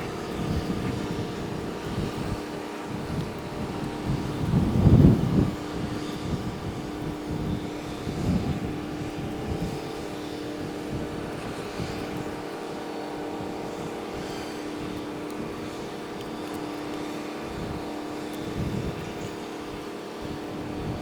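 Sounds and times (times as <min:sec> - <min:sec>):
low rumbling gusts: 0:00.0 - 0:12.4.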